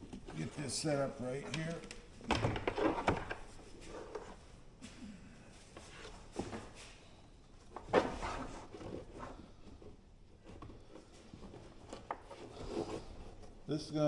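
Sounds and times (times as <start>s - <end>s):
buckles knocking and clattering: 0.0s - 4.3s.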